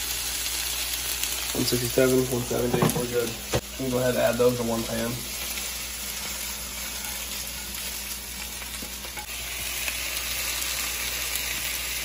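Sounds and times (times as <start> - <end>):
chicken sizzling in a frying pan: 0.0 - 12.0
spatula scraping and tapping: 6.8 - 7.8, 8.4 - 9.3.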